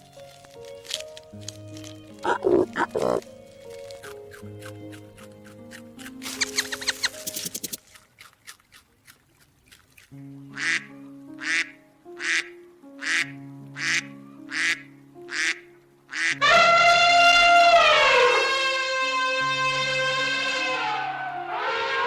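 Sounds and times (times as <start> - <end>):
background music: 0.0 - 8.0, 10.1 - 22.0
drawn-out falling call: 2.2 - 3.2
duck quacking: 2.2 - 3.2, 10.6 - 19.2.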